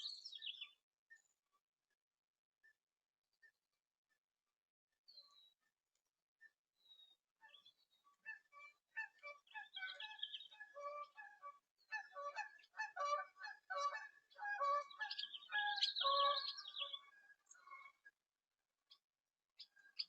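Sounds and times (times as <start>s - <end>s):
birds calling: 0.0s - 1.3s, 6.8s - 18.1s.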